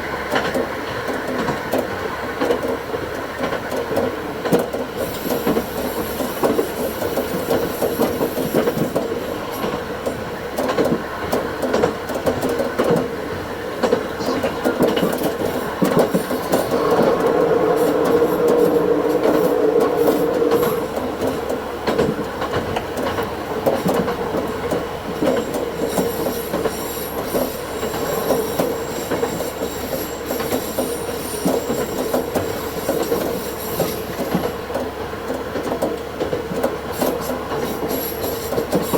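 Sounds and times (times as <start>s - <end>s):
diesel railcar hum: 0.0s - 38.9s
wheels squealing on rails: 4.6s - 35.0s, 36.5s - 38.9s.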